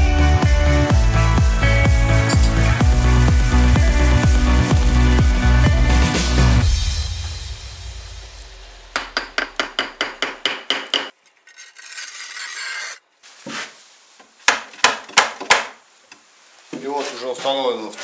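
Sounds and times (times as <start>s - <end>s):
hand tool rasping: 0.7s - 2.9s, 11.4s - 13.0s
sharp knocks: 8.9s - 11.1s.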